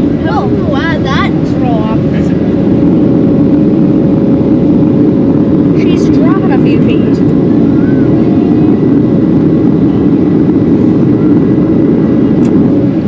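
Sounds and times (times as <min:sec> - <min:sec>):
faint high hum: 0:00.0 - 0:13.0
jet airliner cabin roar: 0:00.0 - 0:13.0.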